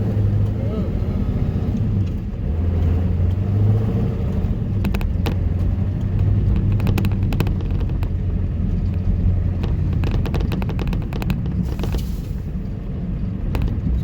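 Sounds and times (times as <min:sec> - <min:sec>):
diesel truck engine drone: 0:00.0 - 0:14.0
sharp clicks and clatters: 0:04.2 - 0:14.0.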